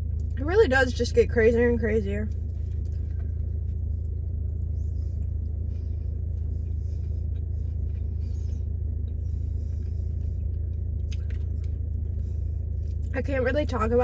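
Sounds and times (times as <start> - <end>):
car idling hum: 0.0 - 14.0
faint chewing: 2.3 - 13.2.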